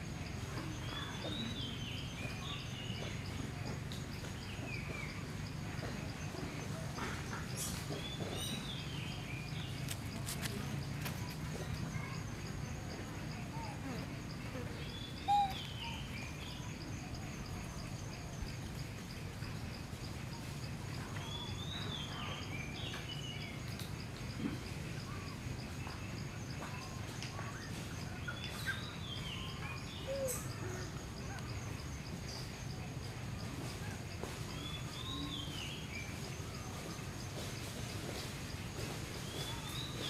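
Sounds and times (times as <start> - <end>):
faint ticks: 22.9 - 25.2.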